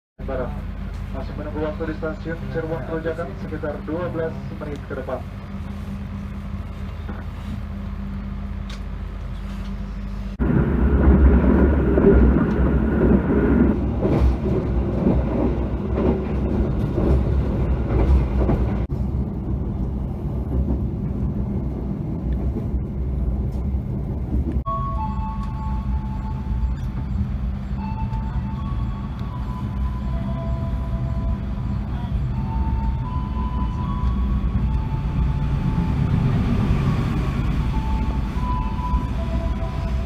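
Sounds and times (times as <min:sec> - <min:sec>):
train humming: 0:00.2 - 0:40.0
train rumbling: 0:00.2 - 0:40.0.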